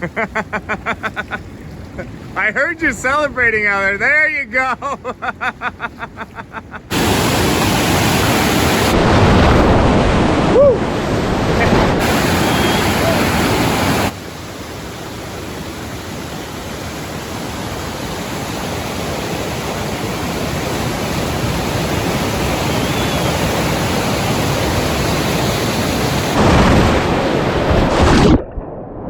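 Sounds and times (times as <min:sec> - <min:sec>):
river rapids rushing: 0:06.9 - 0:27.6.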